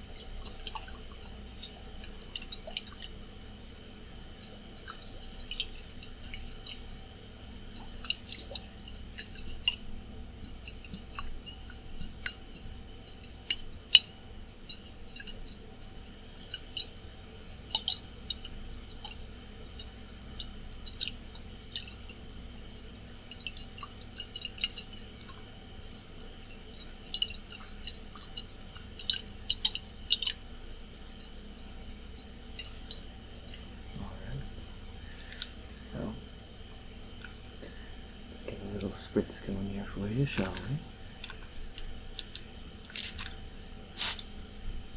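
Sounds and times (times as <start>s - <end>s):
air conditioner hum: 0.0s - 44.9s
water in glass bottle: 42.9s - 43.3s, 44.0s - 44.2s.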